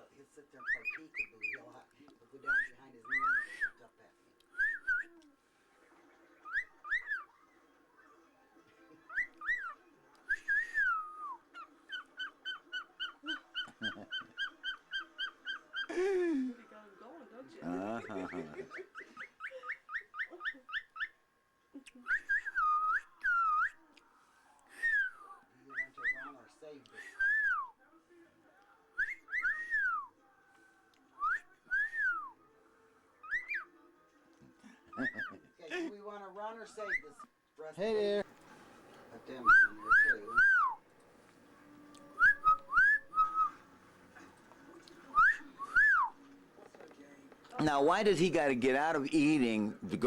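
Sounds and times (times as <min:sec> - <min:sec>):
bird whistling: 0:00.6 - 0:01.6, 0:02.5 - 0:03.8, 0:04.6 - 0:05.2, 0:06.4 - 0:07.4, 0:09.1 - 0:15.9, 0:18.0 - 0:21.2, 0:22.0 - 0:23.8, 0:24.8 - 0:26.4, 0:27.2 - 0:27.7, 0:29.0 - 0:30.1, 0:31.2 - 0:32.3, 0:33.2 - 0:33.8, 0:34.9 - 0:35.4, 0:36.8 - 0:37.3, 0:39.3 - 0:40.8, 0:42.2 - 0:43.6, 0:45.1 - 0:46.2.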